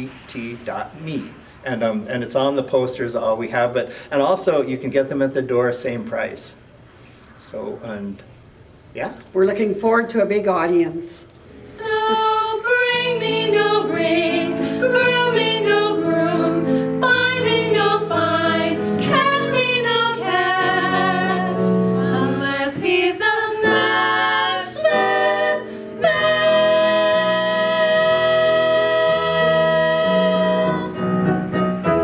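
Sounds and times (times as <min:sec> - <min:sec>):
choir singing: 0:11.6 - 0:32.0.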